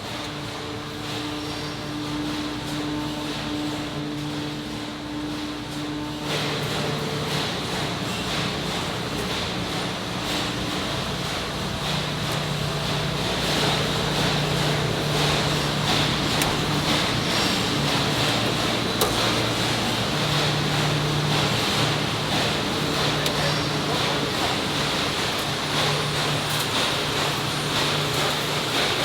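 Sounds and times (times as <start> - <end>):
industrial machinery hum: 0.0 - 29.0.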